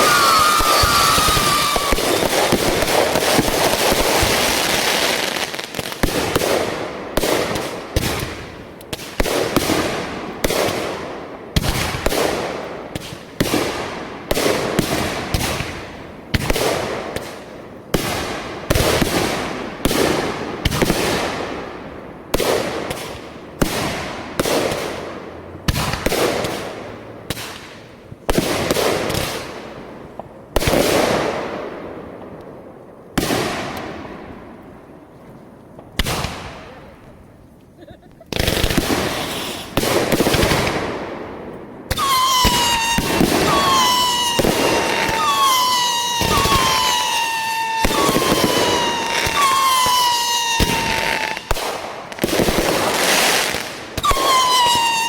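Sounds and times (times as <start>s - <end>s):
fireworks crackling: 0.0s - 11.0s, 37.8s - 41.1s, 41.8s - 55.0s
fireworks bangs: 0.0s - 21.7s, 38.3s - 55.0s.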